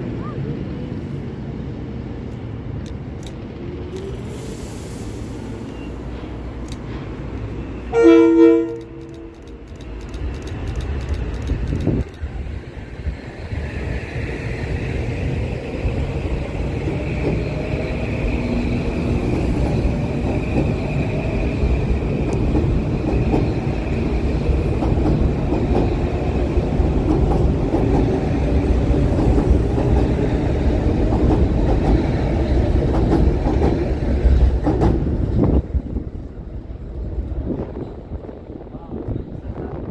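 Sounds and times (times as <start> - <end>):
train wheels rumbling on rail: 0.0 - 39.9
short clicks of train wheels: 6.6 - 12.3, 16.8 - 35.6.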